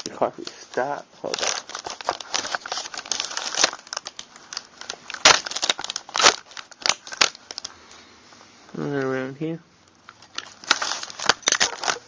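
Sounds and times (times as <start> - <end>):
metal parts scraping and clicking: 10.4 - 12.0.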